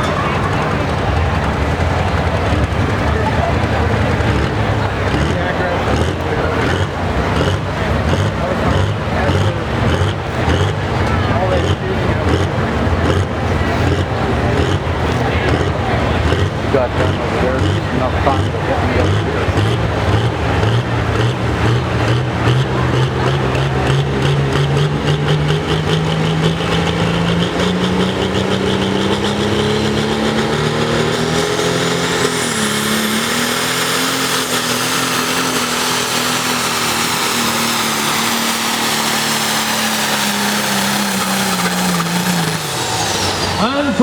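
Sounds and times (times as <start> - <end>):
tractor engine under full load: 0.0 - 44.0.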